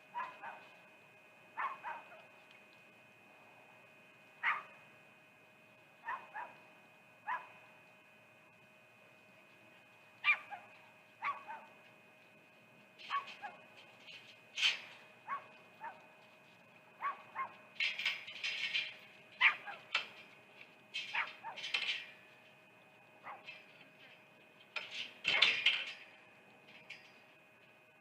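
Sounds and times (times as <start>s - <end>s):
faint steady whine: 0.0s - 28.0s
animal barking high yips: 0.2s - 0.6s, 1.6s - 2.2s, 4.4s - 4.8s, 6.0s - 6.6s, 7.2s - 7.6s, 10.2s - 11.7s, 13.0s - 13.7s, 15.2s - 16.0s, 17.0s - 17.6s, 19.4s - 20.0s, 21.0s - 21.8s, 23.2s - 23.5s.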